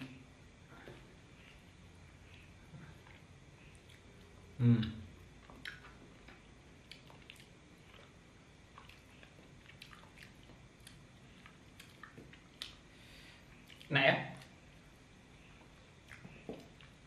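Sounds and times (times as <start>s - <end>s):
wet chewing clicks: 2.3s - 12.8s, 13.6s - 14.6s, 15.6s - 17.0s.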